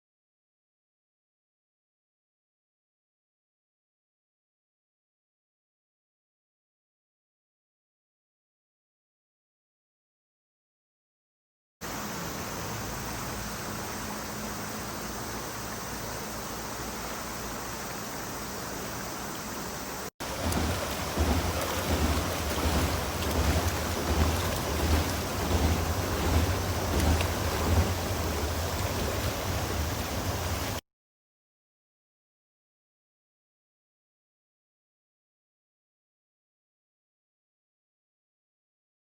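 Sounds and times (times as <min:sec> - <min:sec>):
heavy rain: 0:19.3 - 0:30.8
pulsing low rumble: 0:20.2 - 0:30.8.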